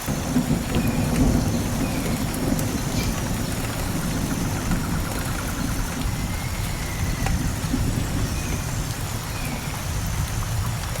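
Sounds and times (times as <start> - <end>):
steady rain in a forest: 0.0 - 11.0.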